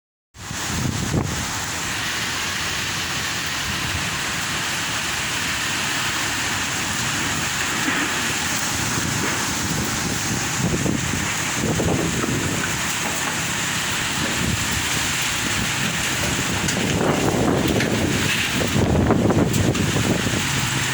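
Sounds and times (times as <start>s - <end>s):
strong wind buffeting microphone: 0.4s - 20.9s.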